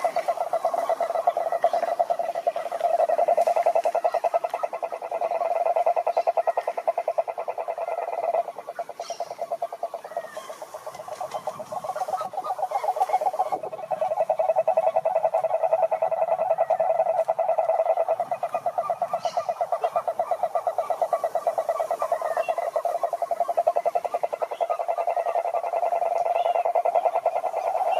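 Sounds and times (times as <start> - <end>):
frogs calling in chorus: 0.0 - 27.9.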